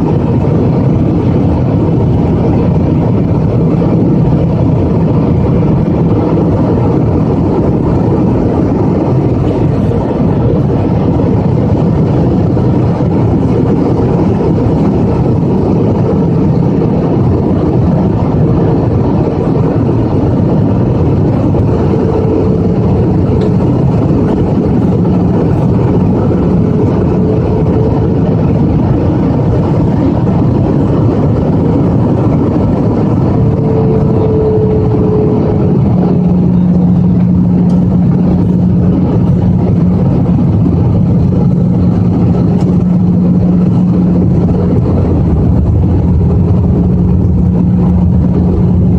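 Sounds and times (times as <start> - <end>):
airliner engines and rushing air: 0.0 - 48.9.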